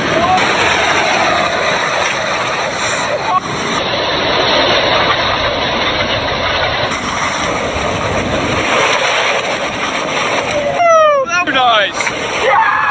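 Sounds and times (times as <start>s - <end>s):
waterfall rushing: 0.0s - 3.8s.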